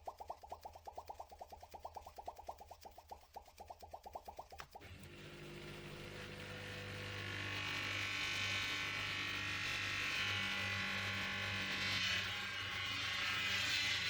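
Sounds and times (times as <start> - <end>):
electric polishing motor whine: 4.9 - 14.0.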